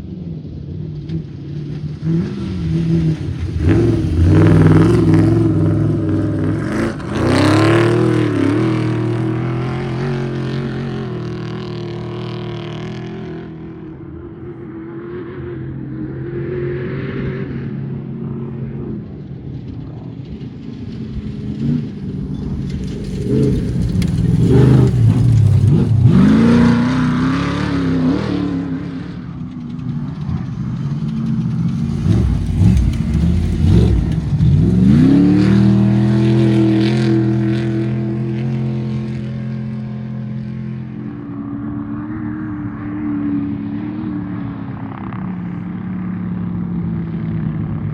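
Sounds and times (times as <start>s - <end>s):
off-road engines revving hard: 1.8s - 13.6s, 21.6s - 41.0s.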